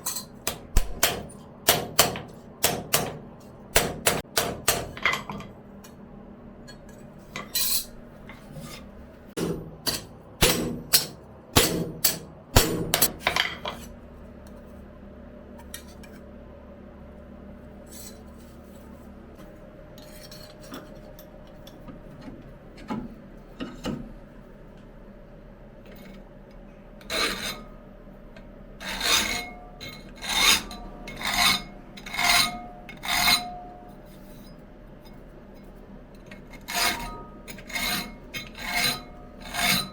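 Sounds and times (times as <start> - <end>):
hand file scraping on steel: 30.2 - 33.6, 36.6 - 39.9.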